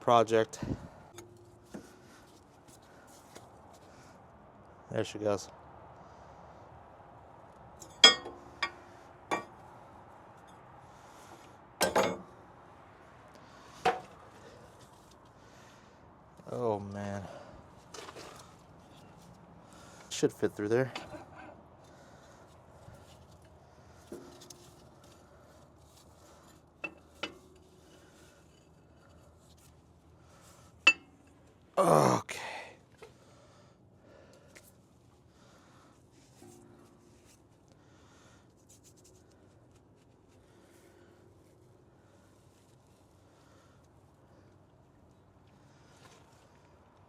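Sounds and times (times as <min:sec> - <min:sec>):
metallic clunks of axle joint: 0:07.8 - 0:09.6, 0:11.8 - 0:12.3, 0:26.8 - 0:27.7
metal parts clanking: 0:11.8 - 0:12.3.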